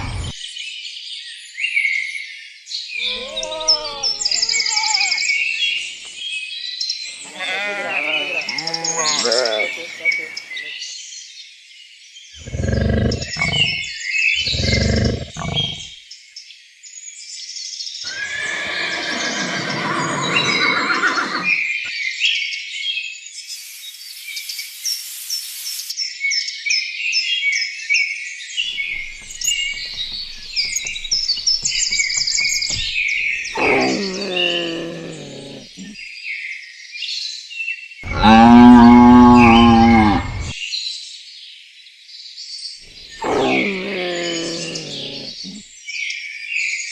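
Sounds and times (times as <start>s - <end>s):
animal calls: 0.0s - 0.4s, 3.0s - 6.2s, 7.1s - 10.8s, 12.4s - 15.9s, 18.1s - 21.6s, 28.7s - 36.0s, 38.0s - 40.6s, 43.1s - 45.6s.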